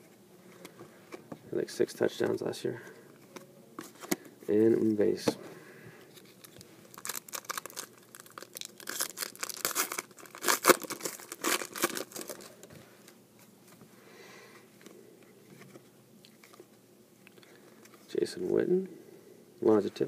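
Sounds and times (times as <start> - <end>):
card pack wrapper tearing: 6.2 - 12.6.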